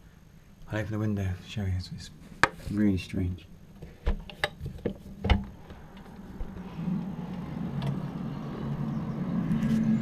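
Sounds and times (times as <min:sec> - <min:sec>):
low droning groan: 0:05.4 - 0:10.0.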